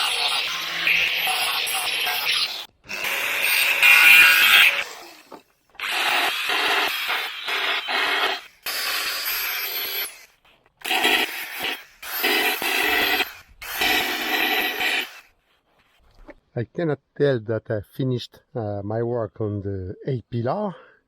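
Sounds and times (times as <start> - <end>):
power tool grinding sheet metal: 0.0 - 15.3.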